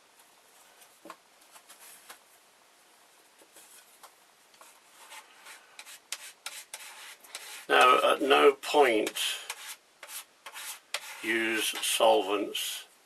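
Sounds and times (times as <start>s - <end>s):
small tool scraping: 4.6s - 7.9s, 9.0s - 11.9s.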